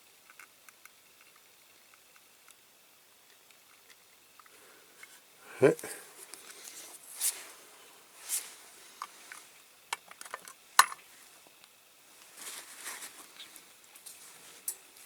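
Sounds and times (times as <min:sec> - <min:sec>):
soft rustles: 0:05.0 - 0:09.6, 0:11.1 - 0:15.0.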